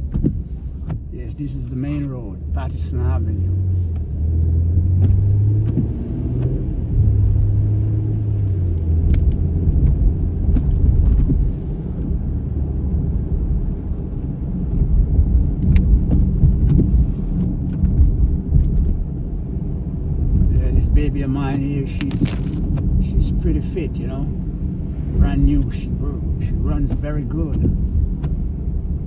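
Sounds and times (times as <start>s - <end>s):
car engine: 0.0s - 29.0s
road rumble: 0.0s - 29.0s.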